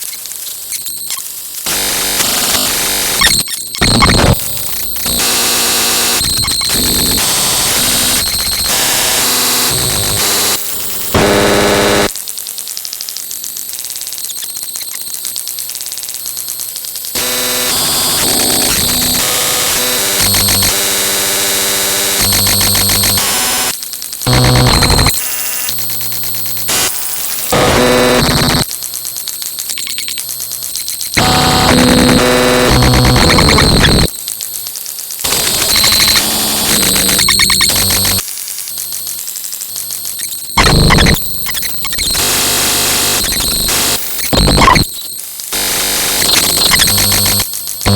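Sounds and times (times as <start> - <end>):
harsh electronic static and buzzing: 0.0 - 47.9
rapid high pulsing: 24.3 - 25.1.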